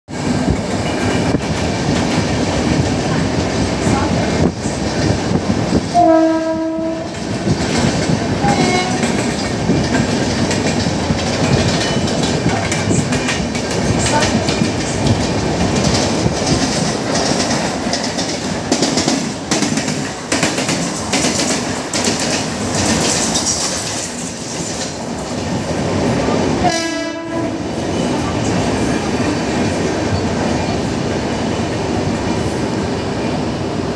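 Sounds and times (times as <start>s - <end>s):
train wheels clickety-clack: 0.1s - 33.1s
train horn blasts: 5.9s - 7.2s, 8.4s - 9.2s, 26.6s - 27.6s.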